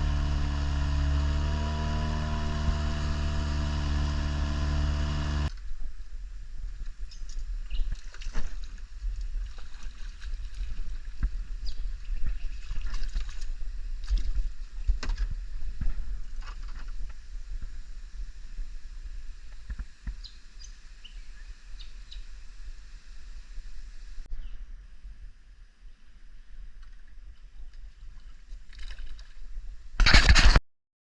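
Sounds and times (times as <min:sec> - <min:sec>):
steady low rumble: 0:00.0 - 0:07.7.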